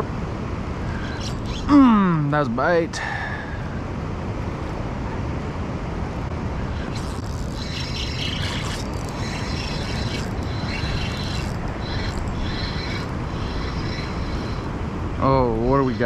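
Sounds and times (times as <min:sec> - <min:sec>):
high whirring: 0:00.8 - 0:02.6, 0:06.2 - 0:16.0.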